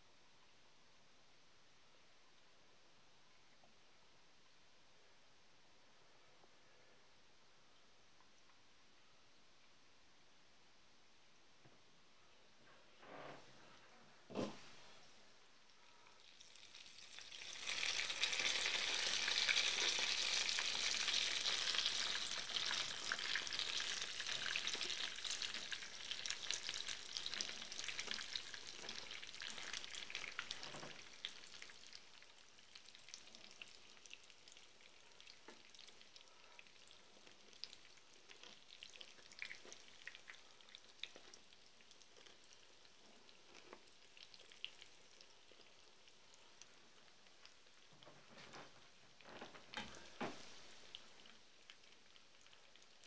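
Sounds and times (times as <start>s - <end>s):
chicken sizzling in hot oil: 16.2s - 47.9s, 49.7s - 53.0s.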